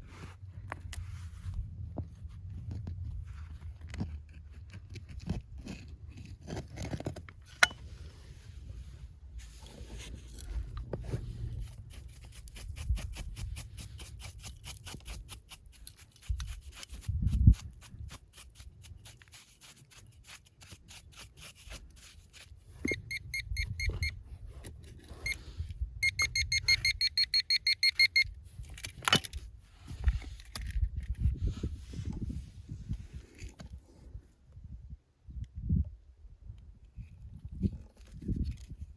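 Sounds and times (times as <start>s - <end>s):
metal detector light ticks: 22.8s - 24.2s, 26.0s - 28.3s
metal detector pulsing beeps: 22.8s - 24.2s, 26.0s - 28.4s.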